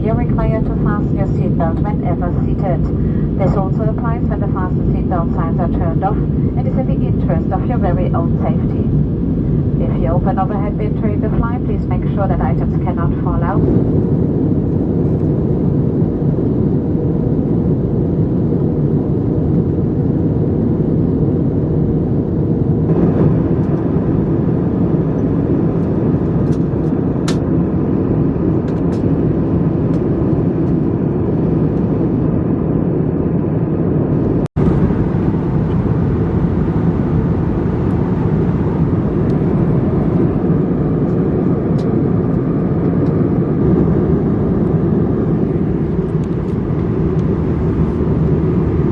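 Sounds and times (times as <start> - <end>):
jet engine roar and airflow: 0.0 - 48.9.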